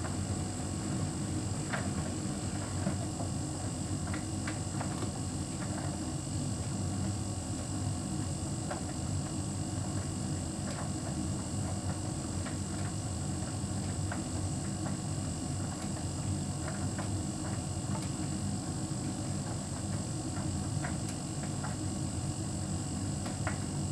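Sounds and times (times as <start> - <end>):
tumble dryer running: 0.0 - 5.9.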